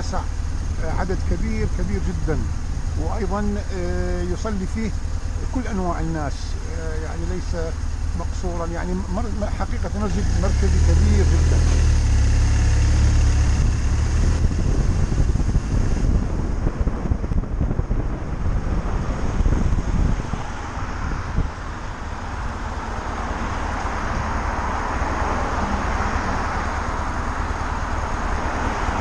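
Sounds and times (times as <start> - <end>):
motorcycle engine running: 0.0 - 29.0
wind rushing over microphone: 11.4 - 29.0.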